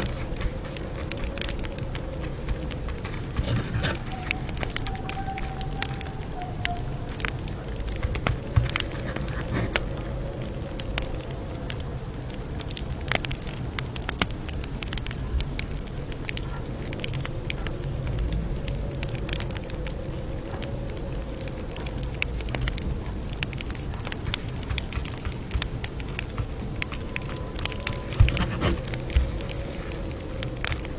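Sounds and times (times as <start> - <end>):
wood popping and snapping: 0.0 - 11.2, 23.3 - 30.9
low rumble of burning fire: 0.0 - 30.9.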